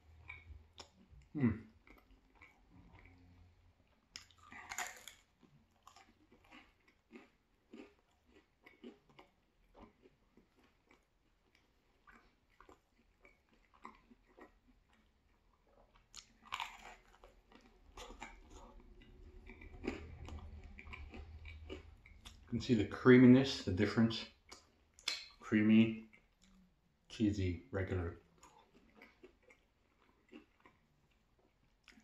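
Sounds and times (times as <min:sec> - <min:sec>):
person chewing pizza: 0:00.0 - 0:32.0
crisp bite: 0:04.2 - 0:09.9
wet mouth clicks: 0:24.5 - 0:25.4.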